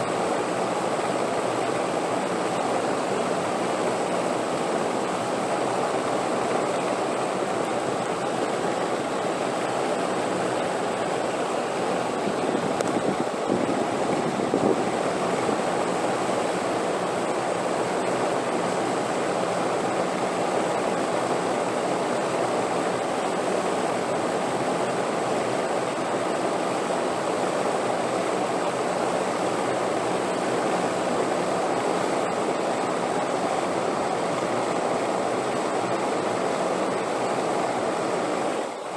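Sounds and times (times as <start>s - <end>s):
wind blowing: 8.8s - 16.7s.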